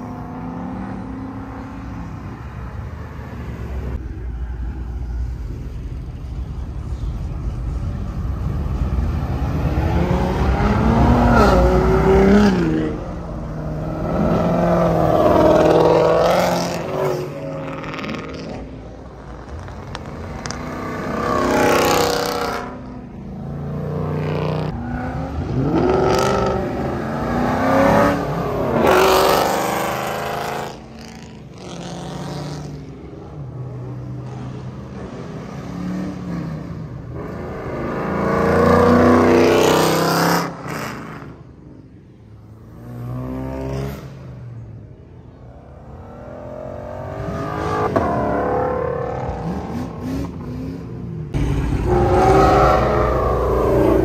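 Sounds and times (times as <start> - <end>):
road traffic: 0.0 - 54.0
cars accelerating hard past: 8.8 - 41.5, 45.4 - 54.0.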